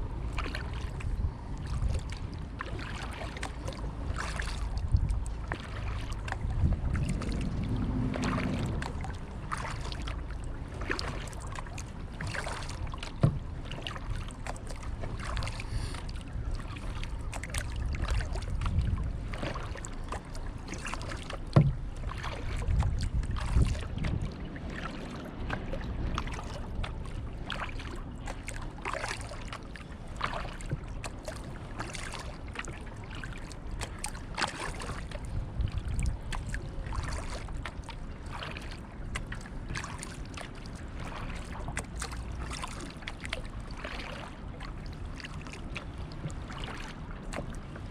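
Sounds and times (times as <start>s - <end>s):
paddle splashing in water: 0.0s - 47.9s
wind rumble on microphone: 0.0s - 47.9s.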